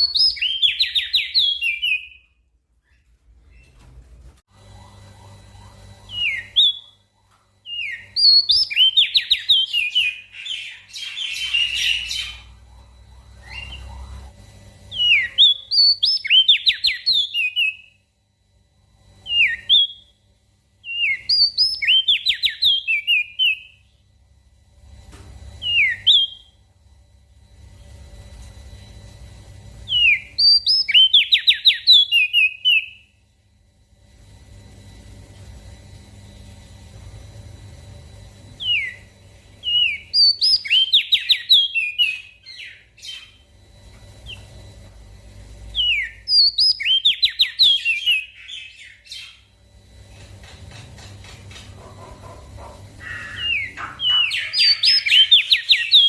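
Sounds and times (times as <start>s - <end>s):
low hum: 0.0s - 56.0s
bird singing whistled notes: 29.9s - 33.0s, 38.6s - 43.4s, 45.8s - 49.4s, 53.3s - 56.0s
buzzy bird call: 51.8s - 56.0s.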